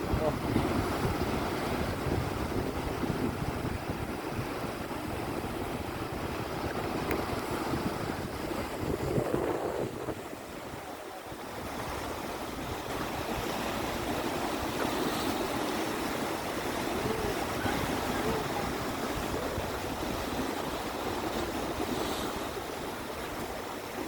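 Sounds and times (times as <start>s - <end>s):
sea waves washing: 0.0s - 24.0s.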